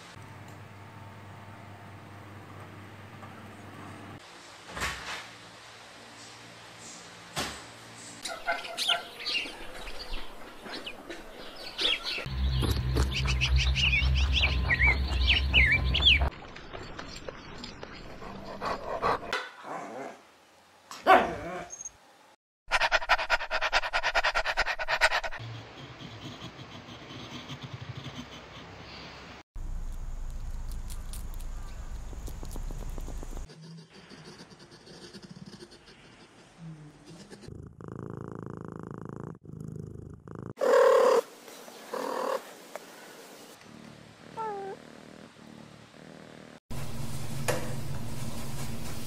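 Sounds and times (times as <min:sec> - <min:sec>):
dog panting rapidly: 0:22.7 - 0:28.8
cat purring: 0:31.9 - 0:33.5, 0:37.3 - 0:41.2, 0:43.7 - 0:46.6
puppy whining: 0:44.3 - 0:44.8
cat meowing: 0:44.4 - 0:44.8.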